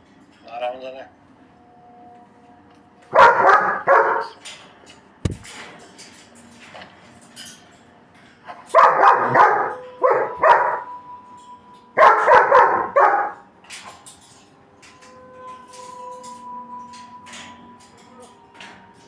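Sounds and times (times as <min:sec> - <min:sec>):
dog barking: 0:03.1 - 0:04.4, 0:08.7 - 0:10.9, 0:12.0 - 0:13.4.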